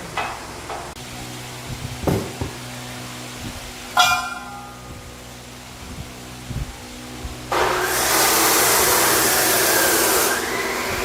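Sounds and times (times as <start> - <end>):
low engine hum: 0.0 - 9.6
knocks: 2.0 - 2.6.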